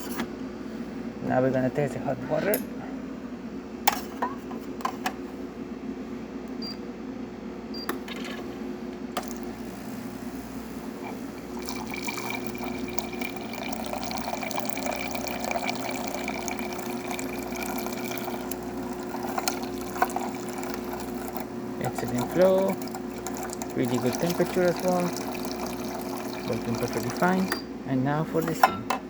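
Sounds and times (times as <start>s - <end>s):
machine hum: 5.4s - 28.7s
water running and splashing: 11.4s - 27.4s.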